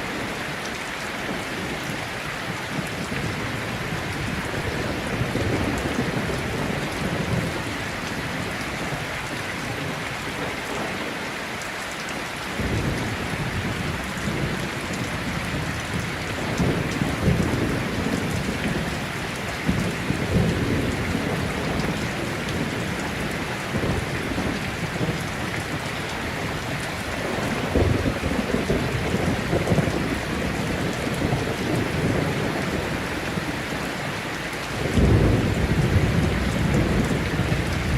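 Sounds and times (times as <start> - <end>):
rolling thunder: 12.6 - 33.6, 34.8 - 37.9.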